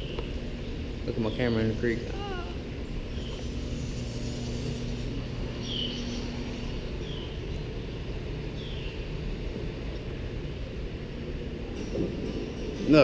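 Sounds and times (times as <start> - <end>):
low outdoor rumble: 0.0 - 13.0
bird chirping: 2.2 - 9.2.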